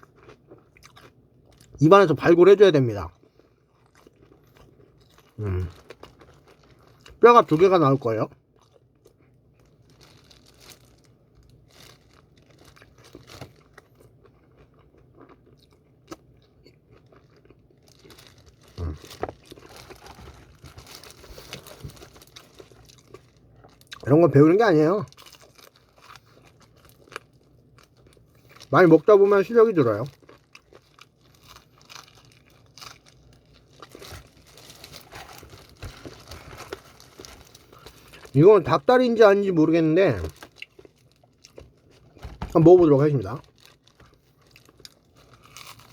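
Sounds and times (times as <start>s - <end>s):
person chewing chicken: 0.0s - 1.8s, 3.1s - 7.2s, 11.5s - 24.0s, 25.2s - 28.7s, 30.1s - 38.4s, 40.3s - 42.6s, 43.4s - 45.9s
light crinkling: 29.4s - 38.4s.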